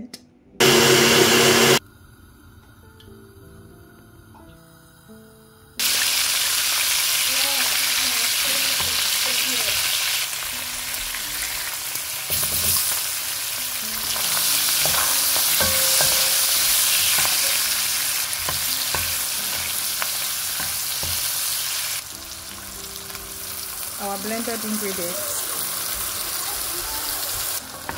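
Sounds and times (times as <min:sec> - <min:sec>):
fish sizzling in hot oil: 0:05.8 - 0:27.9.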